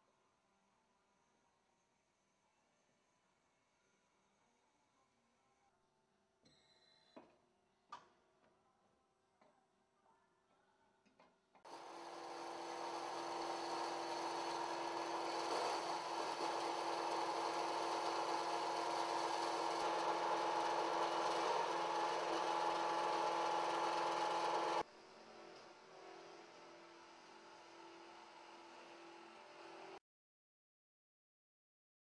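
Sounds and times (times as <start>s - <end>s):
saw running: 11.7s - 24.8s.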